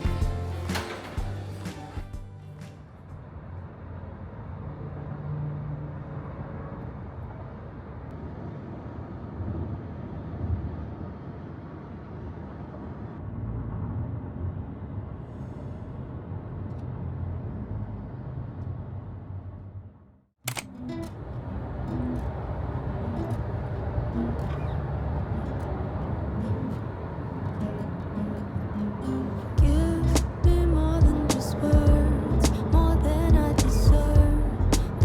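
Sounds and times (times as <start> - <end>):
low vehicle rumble: 29.5 - 35.0.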